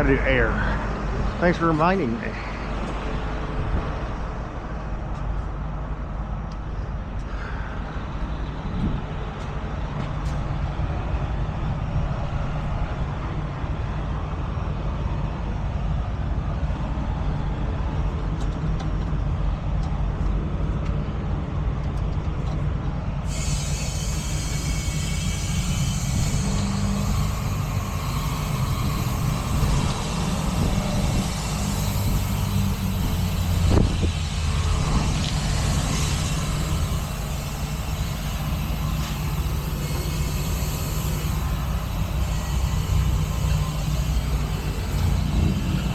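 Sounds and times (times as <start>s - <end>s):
diesel engine idling: 0.0s - 45.9s
compressed air hissing: 23.2s - 45.9s.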